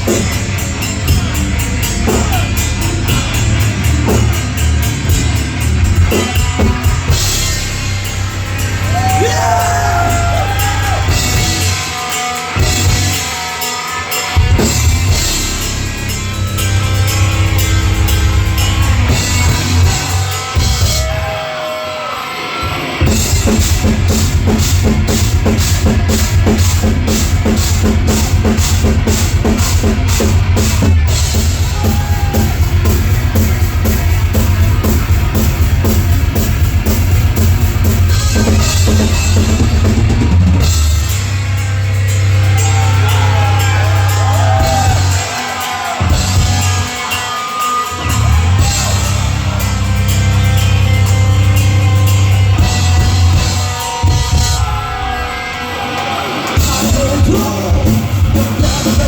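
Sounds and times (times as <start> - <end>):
fast drumming with cymbals: 0.0 - 21.6, 22.9 - 55.5, 56.1 - 59.0
held low chords: 14.4 - 20.8.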